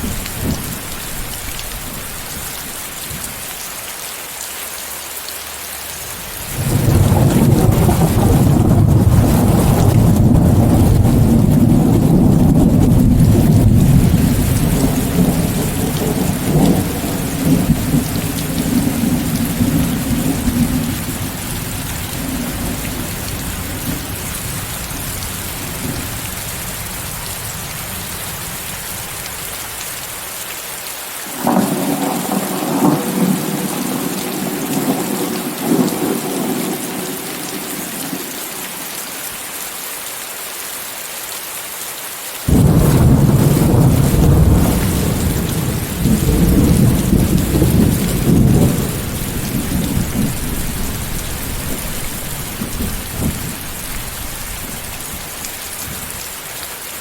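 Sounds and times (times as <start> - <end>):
heavy rain falling: 0.0 - 57.0
thunder rumbling: 6.4 - 29.1, 31.4 - 38.4, 42.5 - 56.3.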